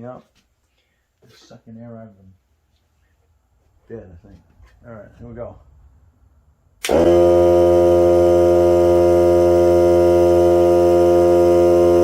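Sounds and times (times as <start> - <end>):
air compressor humming: 6.8 - 12.0.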